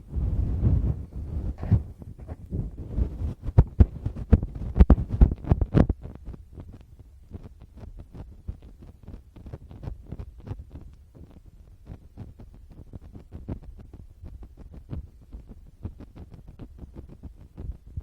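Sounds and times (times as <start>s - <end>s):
scratches on microphone: 0.0s - 18.0s
fingertips tapping on microphone: 0.2s - 10.9s.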